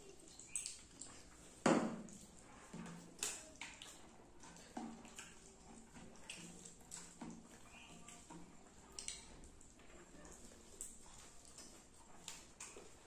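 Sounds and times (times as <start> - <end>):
wet chewing and lip smacks: 3.1 - 13.0.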